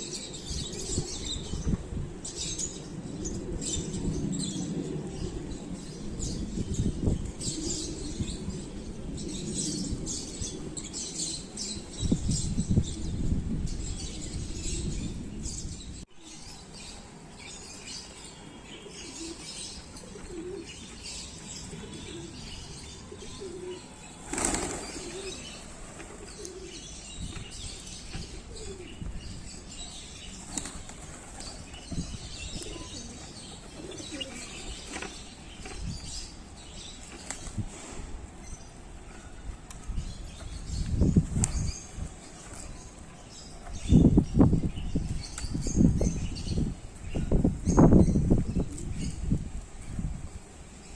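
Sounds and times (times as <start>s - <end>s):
pigeons cooing: 0.0s - 11.9s, 13.8s - 37.0s
pigeons flapping wings: 24.2s - 26.5s, 30.4s - 31.8s.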